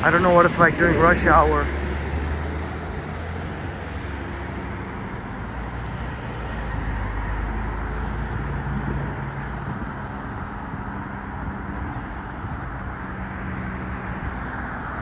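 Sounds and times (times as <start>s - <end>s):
vehicle passing: 0.0s - 9.4s
road traffic: 0.0s - 15.0s.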